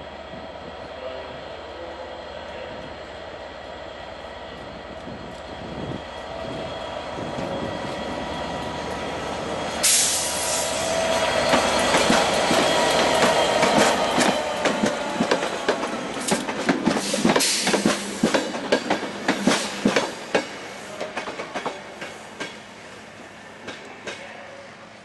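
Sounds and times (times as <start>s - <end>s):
diesel locomotive engine running: 0.0s - 20.4s
wheels clicking over rail joints: 11.1s - 22.6s.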